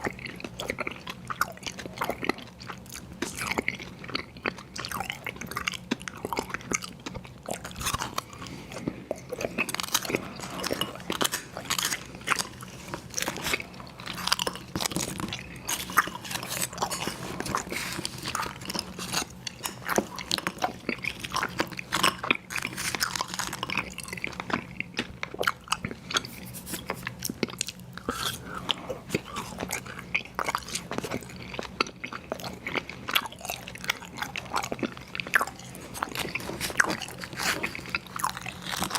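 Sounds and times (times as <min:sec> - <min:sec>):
chewing and crunching cereal: 0:00.0 - 0:38.9.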